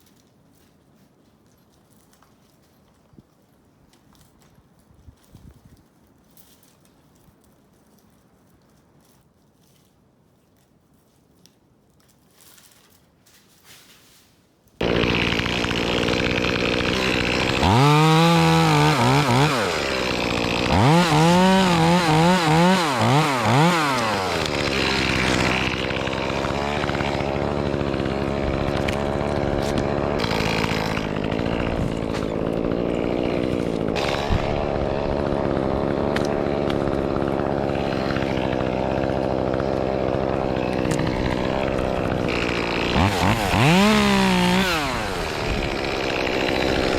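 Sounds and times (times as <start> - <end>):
chainsaw starting and revving: 14.8 - 46.9.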